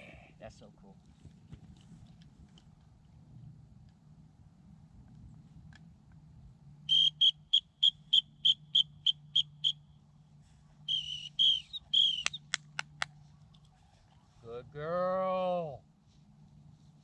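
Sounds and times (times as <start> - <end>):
dog whistle toots: 6.9 - 9.8, 10.9 - 12.5.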